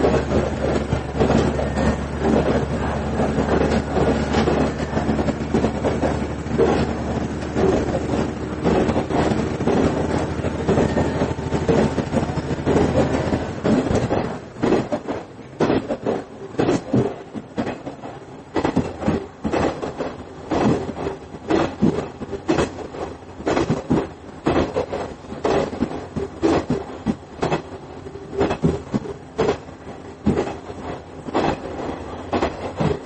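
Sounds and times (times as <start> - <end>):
diesel engine drone: 0.0 - 14.8
steady train rumble: 0.0 - 33.0
wheels clacking over rail joints: 0.0 - 33.0.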